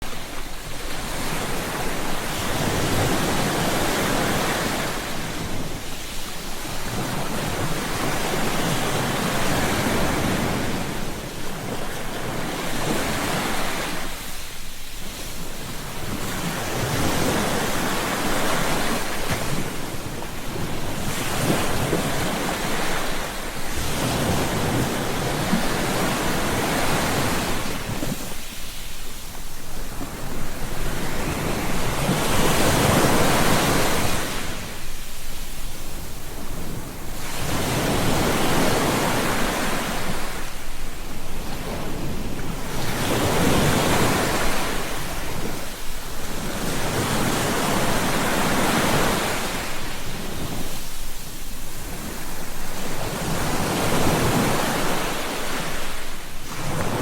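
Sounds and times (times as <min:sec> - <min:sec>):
ocean surf breaking on beach: 0:00.0 - 0:57.0.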